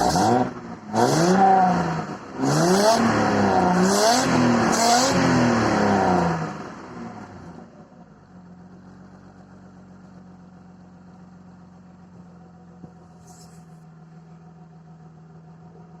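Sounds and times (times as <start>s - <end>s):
car engine idling: 5.5s - 16.0s.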